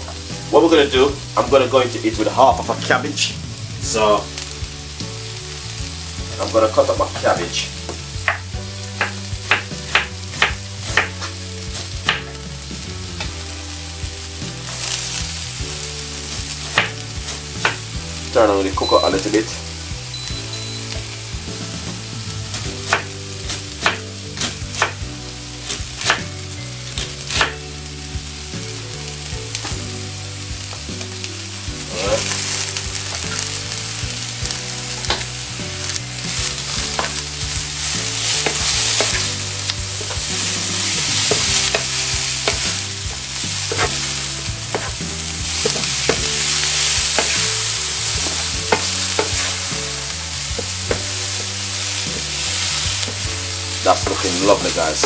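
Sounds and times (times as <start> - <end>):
vegetables sizzling in a frying pan: 0.0 - 55.0
wooden spoon stirring: 31.9 - 55.0.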